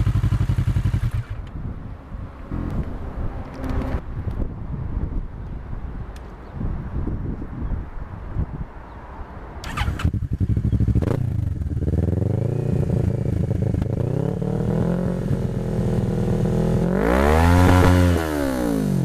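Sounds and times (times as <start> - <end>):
motorcycle engine idling: 0.0 - 1.5, 9.7 - 16.7.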